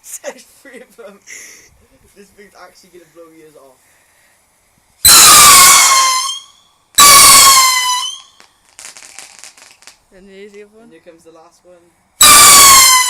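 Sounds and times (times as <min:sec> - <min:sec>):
shrill rocket whistle: 0:05.0 - 0:09.9, 0:12.2 - 0:13.0.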